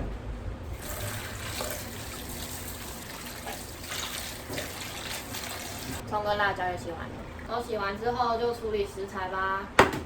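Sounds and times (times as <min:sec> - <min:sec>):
tap water splashing on vegetables: 0:01.4 - 0:06.0.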